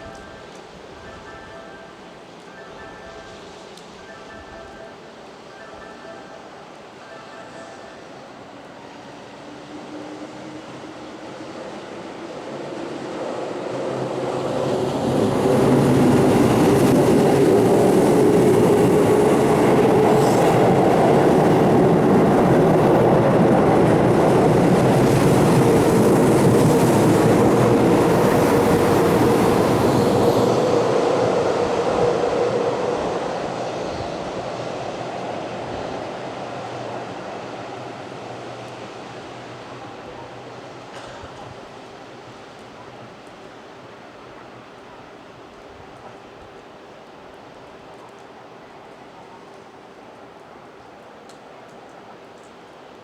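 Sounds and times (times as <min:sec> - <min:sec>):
electric train passing: 0:00.0 - 0:41.0.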